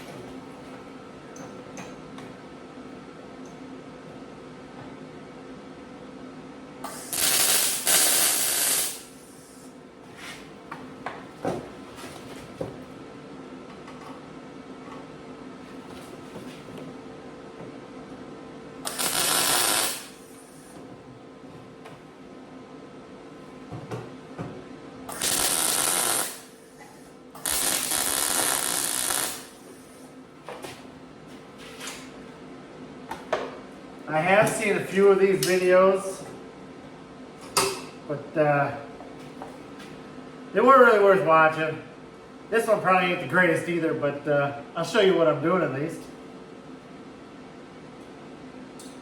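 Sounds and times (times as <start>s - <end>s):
steady background hum: 0.0s - 49.0s
power tool on sheet metal: 6.9s - 9.2s, 18.9s - 20.2s, 25.1s - 26.5s, 27.4s - 29.6s
loud hissing bursts: 6.9s - 9.6s, 18.9s - 20.2s, 25.1s - 26.5s, 27.4s - 29.6s.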